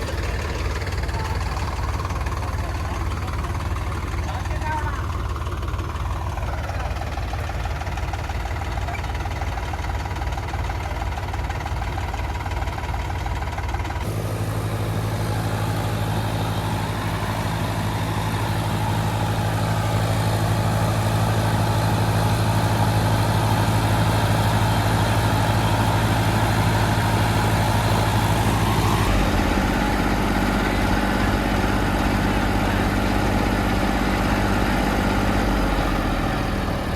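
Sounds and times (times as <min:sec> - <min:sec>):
heavy diesel engine running: 0:00.0 - 0:36.9.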